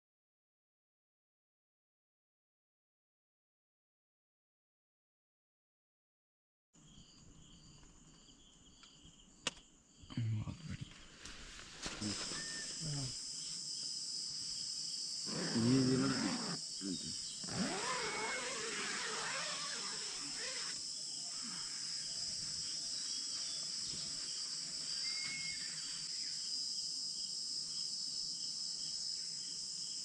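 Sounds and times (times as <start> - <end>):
crickets chirping: 6.8 - 30.0.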